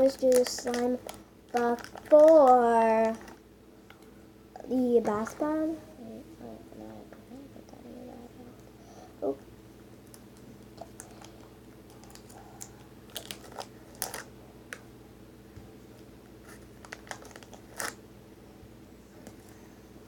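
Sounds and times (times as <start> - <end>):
slime clicking and crackling: 0.0 - 3.3.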